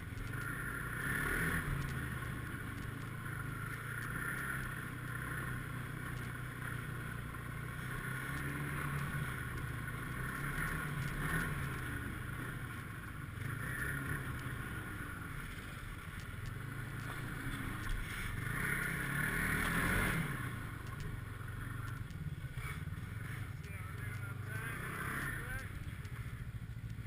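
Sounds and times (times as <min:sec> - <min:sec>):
snowmobile engine running: 0:00.0 - 0:27.0.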